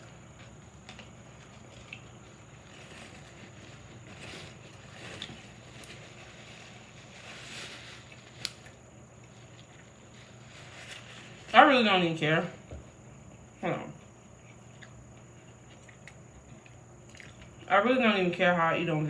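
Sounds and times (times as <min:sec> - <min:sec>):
sandwich wrapper rustling: 0:00.0 - 0:12.2
low steady hum: 0:00.0 - 0:19.0
person chewing: 0:14.4 - 0:17.7.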